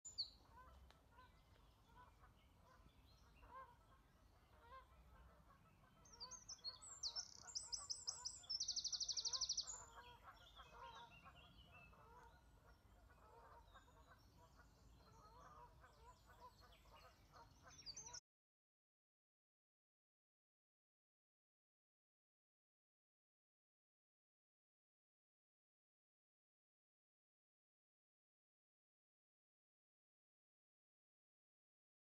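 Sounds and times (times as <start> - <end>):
faint bird calls: 0.1 - 18.2.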